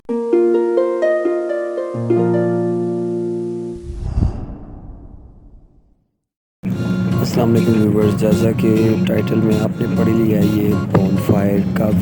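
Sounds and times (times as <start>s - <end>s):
plucked harp-like music: 0.1s - 3.8s
low rumbling sound effect: 3.7s - 6.0s.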